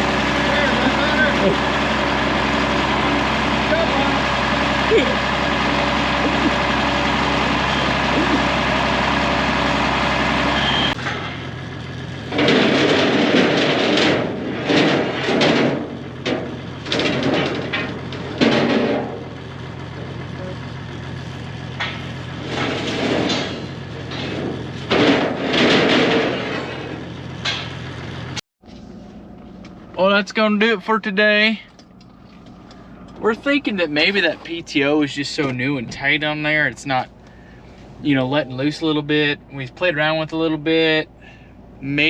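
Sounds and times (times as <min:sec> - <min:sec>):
metallic clanks and bangs: 0:00.0 - 0:08.9, 0:10.9 - 0:28.4
metal scraping: 0:00.0 - 0:20.2, 0:21.0 - 0:37.1
engine idling: 0:00.0 - 0:42.0.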